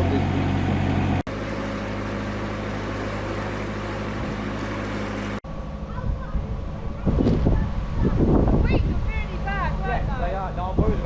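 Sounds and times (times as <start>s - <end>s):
diesel engine running: 0.0s - 8.1s.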